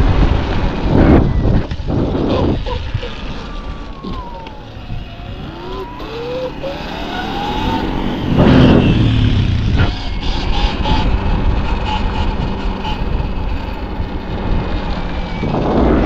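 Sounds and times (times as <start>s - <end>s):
rushing noise with low rumble: 0.0s - 16.0s
electric motor whine: 3.2s - 10.1s.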